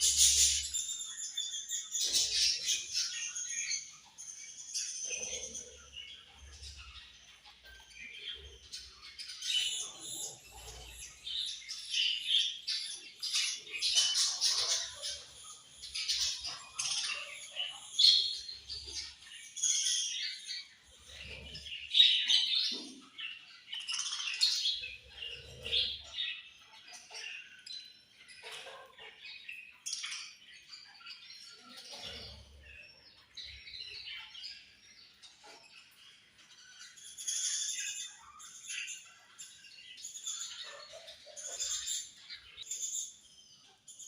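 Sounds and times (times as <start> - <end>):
budgerigars chirping and warbling: 0.0 - 44.0.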